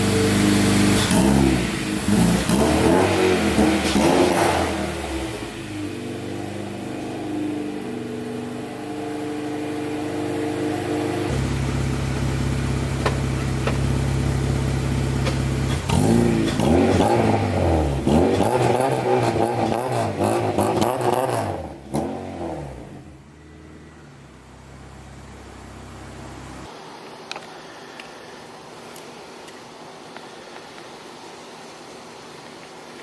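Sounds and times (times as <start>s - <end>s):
car engine idling: 0.0s - 21.9s, 22.7s - 26.7s
car engine revving: 0.0s - 26.7s.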